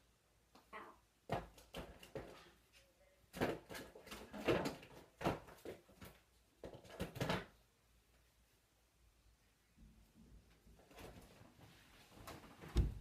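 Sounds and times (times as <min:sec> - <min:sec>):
objects knocking and clattering: 0:03.3 - 0:07.6.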